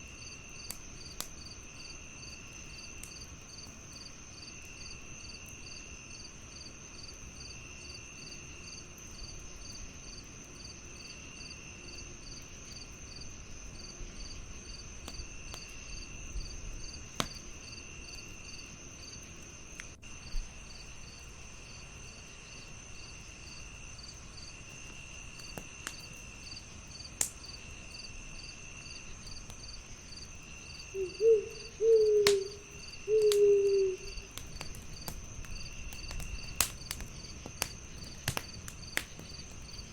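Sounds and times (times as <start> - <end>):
wood fire crackling: 0.0 - 10.9, 12.4 - 39.9
crickets chirping: 0.0 - 39.9
lower insect trill: 0.0 - 39.9
owl hooting: 30.9 - 34.3.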